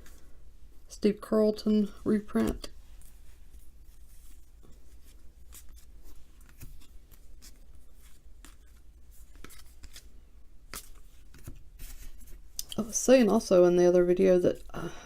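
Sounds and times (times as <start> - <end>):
trading cards sliding and flipping: 2.4 - 12.5.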